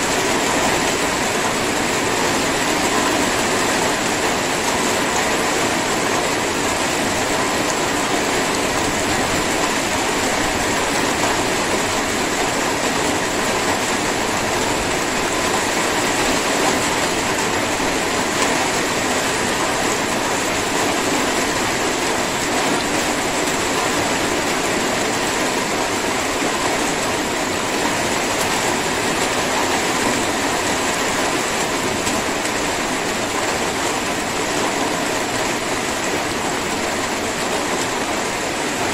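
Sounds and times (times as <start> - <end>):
light rain falling: 0.0 - 38.9.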